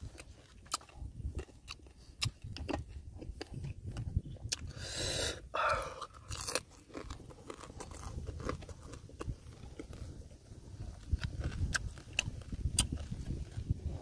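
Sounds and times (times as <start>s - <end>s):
man chewing food: 0.0s - 14.0s.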